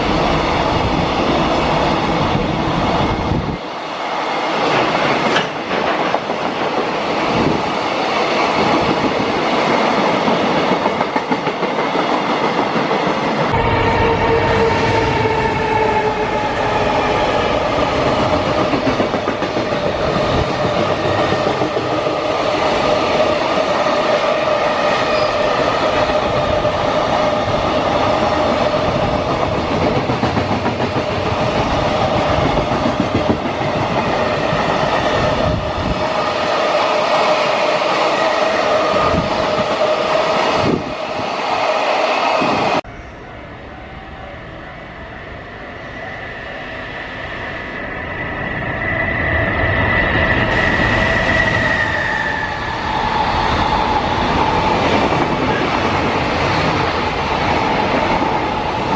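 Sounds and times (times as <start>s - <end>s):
freight train wheels clickety-clack: 4.4s - 41.5s, 50.4s - 58.9s.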